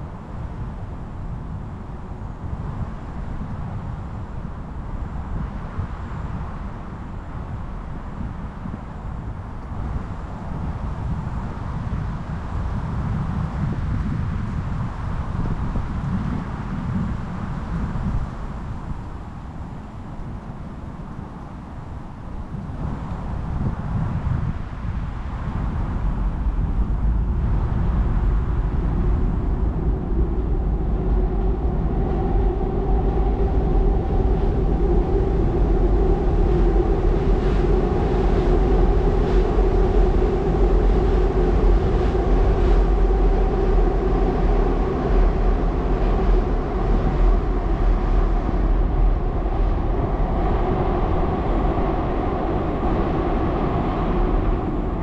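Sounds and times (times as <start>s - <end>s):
train rumbling over bridge: 25.0s - 55.0s.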